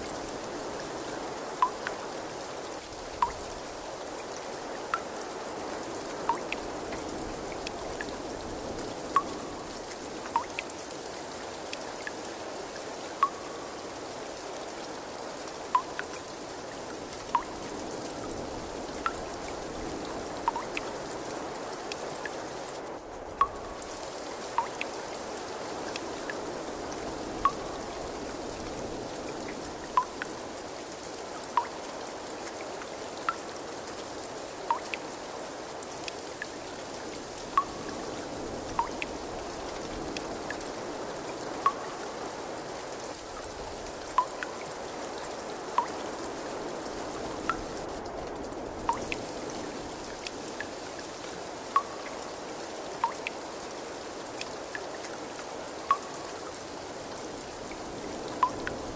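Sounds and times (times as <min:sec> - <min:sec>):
running water rushing: 0:00.0 - 0:58.9
water drops plinking: 0:01.6 - 0:02.0, 0:03.2 - 0:03.4, 0:06.3 - 0:06.6, 0:09.2 - 0:09.7, 0:10.3 - 0:10.7, 0:13.2 - 0:13.8, 0:15.8 - 0:16.2, 0:17.3 - 0:17.6, 0:20.5 - 0:20.9, 0:23.4 - 0:23.8, 0:24.6 - 0:24.9, 0:27.4 - 0:27.8, 0:30.0 - 0:30.3, 0:31.5 - 0:31.8, 0:34.7 - 0:35.0, 0:37.5 - 0:38.0, 0:38.8 - 0:39.1, 0:41.6 - 0:42.0, 0:44.1 - 0:44.6, 0:45.8 - 0:46.0, 0:51.7 - 0:52.2, 0:53.0 - 0:53.4, 0:55.9 - 0:56.2, 0:58.4 - 0:58.8.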